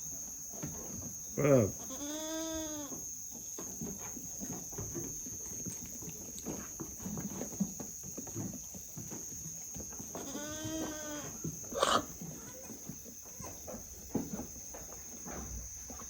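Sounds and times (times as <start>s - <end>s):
animals rustling and knocking: 0.0s - 16.0s
goat bleating: 1.4s - 3.0s, 10.1s - 12.8s.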